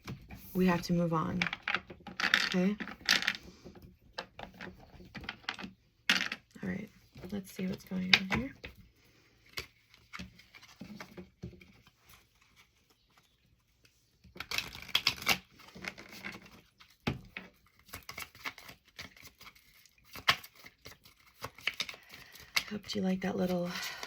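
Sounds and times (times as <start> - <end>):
cards being shuffled: 9.4 - 23.6.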